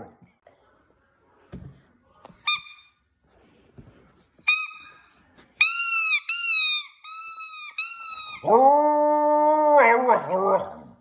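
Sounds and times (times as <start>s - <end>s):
dog toy squeaking: 2.4s - 2.9s, 4.5s - 5.0s, 5.6s - 8.5s.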